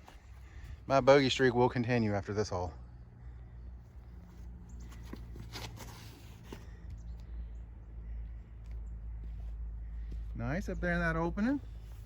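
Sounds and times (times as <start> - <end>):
footsteps and scuffs: 0.0 - 0.8, 4.0 - 7.2.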